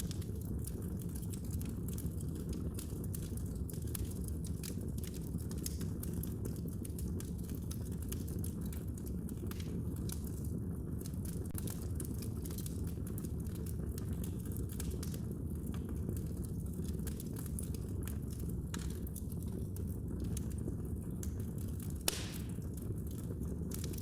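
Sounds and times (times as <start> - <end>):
wood fire crackling: 0.0 - 24.0
sharp pops of fire: 21.2 - 24.0.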